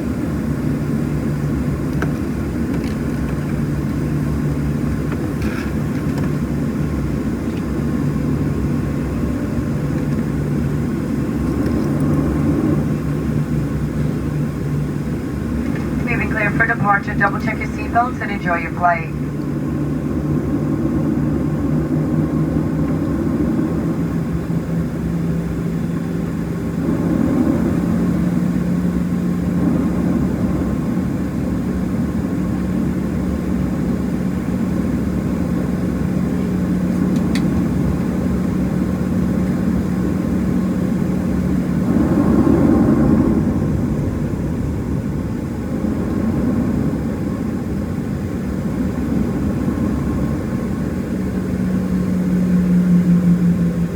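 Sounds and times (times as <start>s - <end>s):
jet engines humming in cabin: 0.0s - 53.9s.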